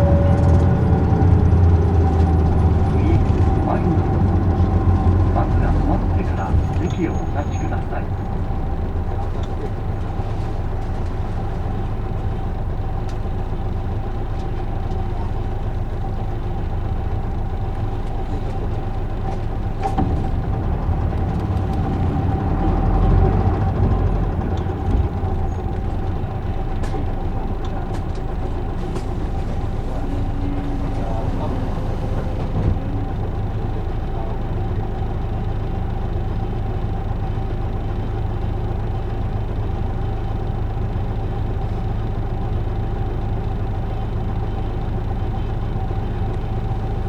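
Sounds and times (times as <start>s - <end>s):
thin whine: 0.0s - 2.6s
bus diesel engine rumble: 0.0s - 47.0s.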